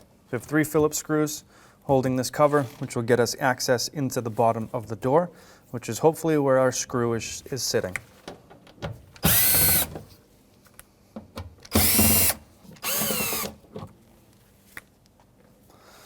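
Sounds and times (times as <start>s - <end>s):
power drill spinning: 9.2s - 10.0s, 11.7s - 13.6s.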